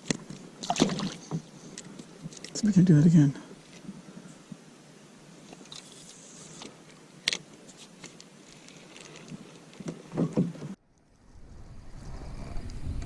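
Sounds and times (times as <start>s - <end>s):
fishing gear clicks and knocks: 1.3s - 2.6s, 7.3s - 10.6s.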